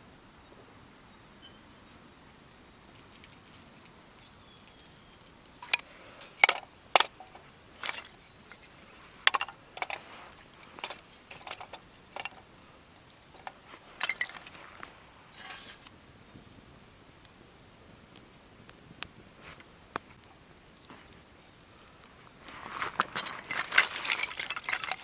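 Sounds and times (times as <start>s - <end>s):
camp cookware clinking: 1.4s - 1.9s, 5.3s - 15.9s, 23.0s - 25.0s.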